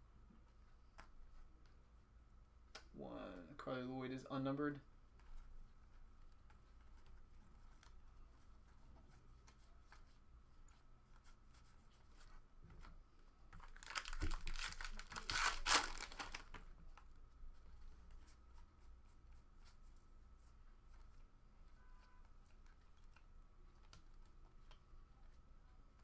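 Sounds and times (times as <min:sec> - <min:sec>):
foil pack tearing open: 0:13.7 - 0:16.5.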